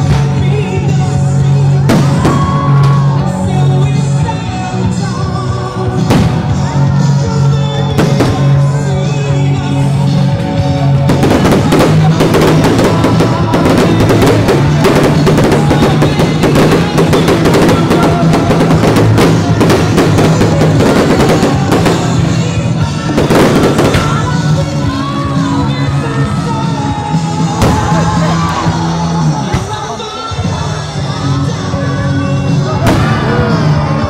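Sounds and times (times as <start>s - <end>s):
fireworks popping: 11.0s - 24.8s
music with drum beat: 11.0s - 29.9s.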